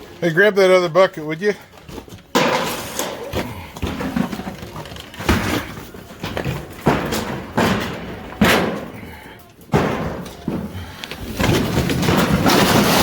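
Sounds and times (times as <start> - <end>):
heavy crashes and clattering: 2.1 - 9.1, 9.7 - 13.0
rough scraping: 10.8 - 13.0.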